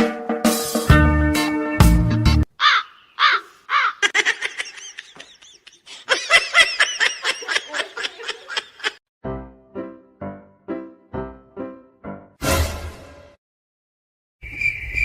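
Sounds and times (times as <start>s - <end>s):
music: 0.0s - 2.5s, 9.2s - 13.4s
animal chattering high calls: 2.6s - 5.9s.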